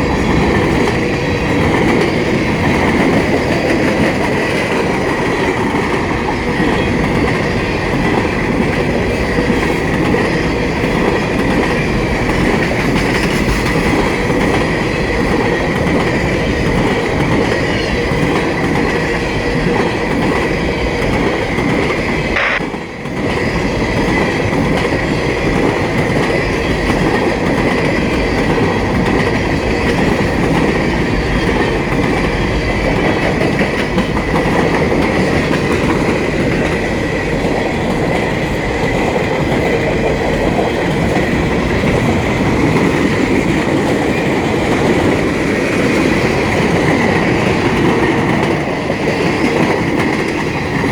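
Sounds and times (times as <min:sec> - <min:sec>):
freight train rumbling past: 0:00.0 - 0:50.9
wheels clacking over rail joints: 0:00.0 - 0:50.9
high-pitched tone: 0:22.4 - 0:22.6.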